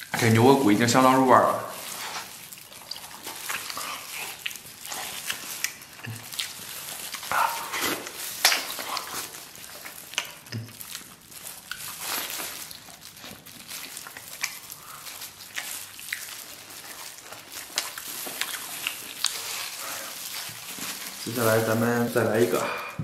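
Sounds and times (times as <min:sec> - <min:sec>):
wet chewing and mouth smacks: 0:01.8 - 0:21.3.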